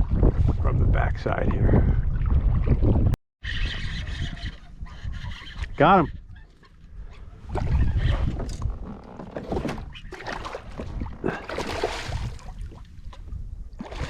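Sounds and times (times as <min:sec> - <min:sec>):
water splashing: 0:09.4 - 0:13.0.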